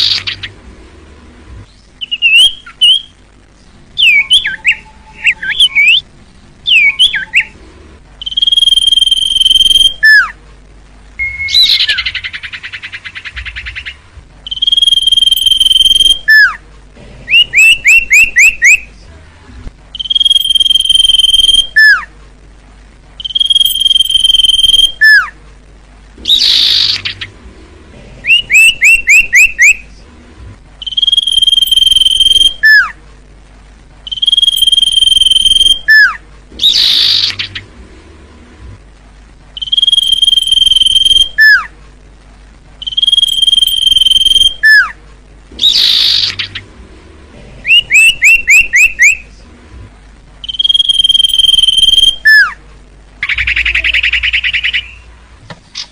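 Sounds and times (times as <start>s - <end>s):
bird whistling song: 0.0s - 0.5s, 1.7s - 3.2s, 4.0s - 7.6s, 8.2s - 10.4s, 11.2s - 16.6s, 17.3s - 18.9s, 19.9s - 22.1s, 23.2s - 25.4s, 26.2s - 27.3s, 28.2s - 29.8s, 30.8s - 33.0s, 34.0s - 37.7s, 39.6s - 41.7s, 42.8s - 45.0s, 45.6s - 46.6s, 47.6s - 49.2s, 50.4s - 52.6s, 53.2s - 55.1s.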